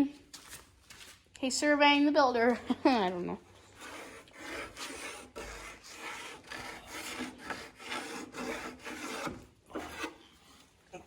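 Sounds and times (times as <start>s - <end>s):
pencil scratching on wood: 3.6s - 10.6s.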